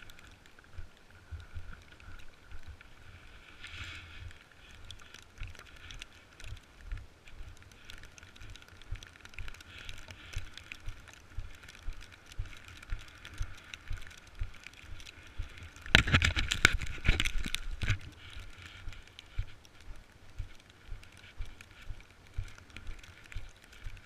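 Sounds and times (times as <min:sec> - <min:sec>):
snowboard sliding over snow: 0:00.0 - 0:05.0.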